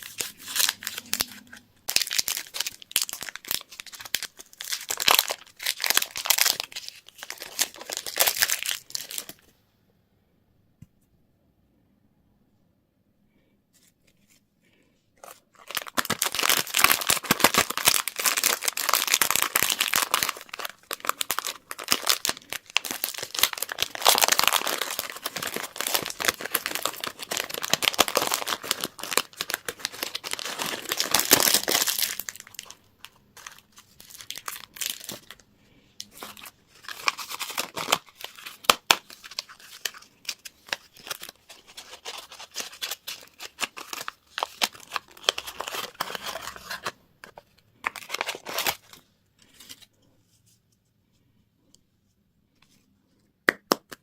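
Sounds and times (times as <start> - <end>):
wrappers torn and crinkled: 0.0 - 9.4, 15.2 - 35.4, 36.0 - 47.0, 47.8 - 49.9.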